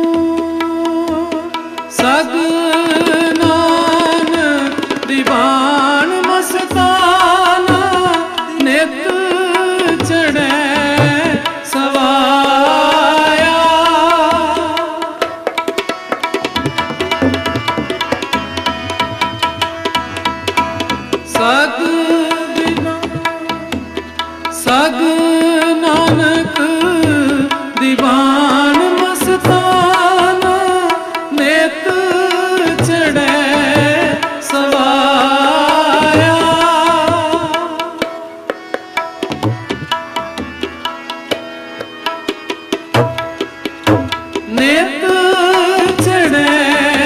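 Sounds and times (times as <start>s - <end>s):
person singing: 0.0s - 15.5s, 21.2s - 38.4s, 44.0s - 47.0s
harmonium held notes: 0.0s - 47.0s
tabla playing fast rhythm: 0.0s - 47.0s.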